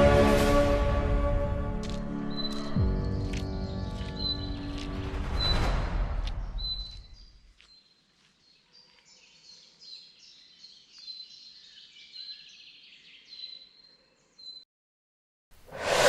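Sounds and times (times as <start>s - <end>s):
music: 0.0s - 6.5s.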